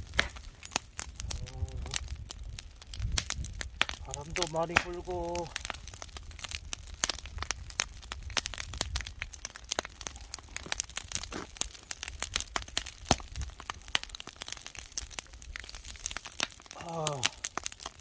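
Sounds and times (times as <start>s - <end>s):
wood fire crackling and popping: 0.0s - 18.0s
wind rumble on microphone: 1.0s - 10.3s, 12.0s - 13.6s.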